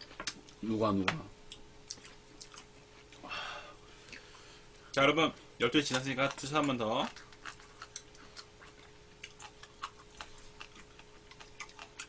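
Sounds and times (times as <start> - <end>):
faint steady hum: 0.0 - 12.0
wet chewing clicks: 1.5 - 3.2, 5.8 - 12.0.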